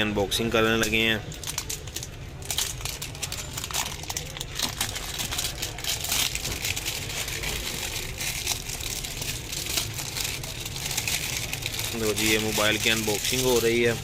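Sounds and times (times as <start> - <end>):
cardboard packaging rustling: 1.3 - 13.8.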